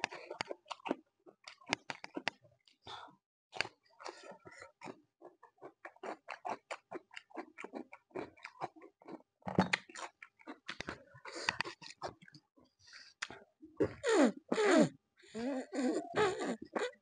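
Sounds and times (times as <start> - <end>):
chewing with wet mouth clicks: 0.0 - 2.8, 3.6 - 12.4.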